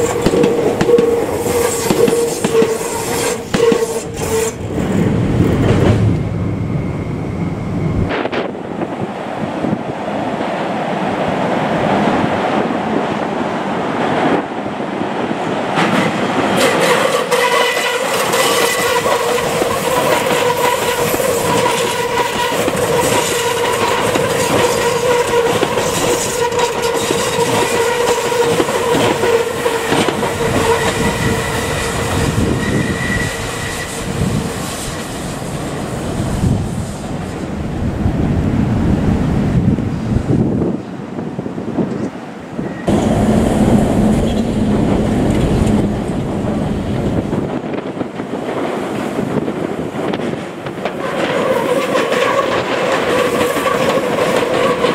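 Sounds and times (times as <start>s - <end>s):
wheels clacking over rail joints: 0.0s - 6.2s, 15.7s - 35.1s, 42.9s - 54.9s
electric train passing: 0.0s - 54.9s.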